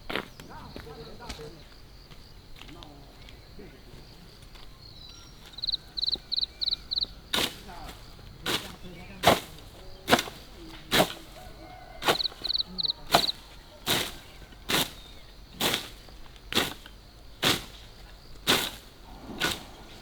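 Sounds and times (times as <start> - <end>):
blade swishing through grass: 7.3 - 20.0.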